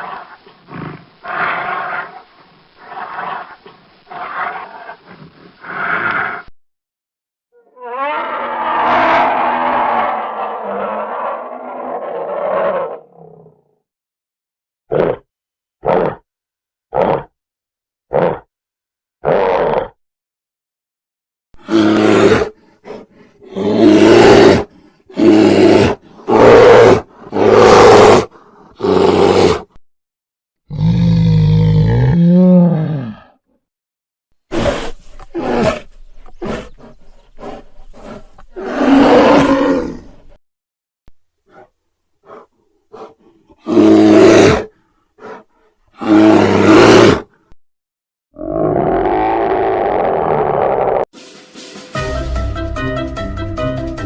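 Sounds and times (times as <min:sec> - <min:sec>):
bear roaring: 0:07.6 - 0:13.7, 0:14.9 - 0:15.2, 0:15.8 - 0:16.2, 0:16.9 - 0:17.3, 0:18.1 - 0:18.5, 0:19.2 - 0:20.0, 0:21.6 - 0:29.8, 0:30.7 - 0:33.4, 0:34.5 - 0:40.2, 0:41.5 - 0:47.4, 0:48.4 - 0:51.1
bear huffing grunts: 0:34.5 - 0:38.6, 0:41.5 - 0:44.5, 0:45.2 - 0:46.3.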